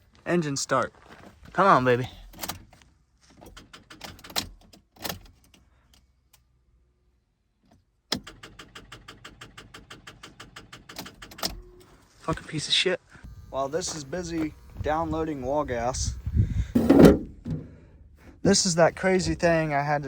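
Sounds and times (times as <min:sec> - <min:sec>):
car starter solenoid clicking: 0:08.1 - 0:11.9.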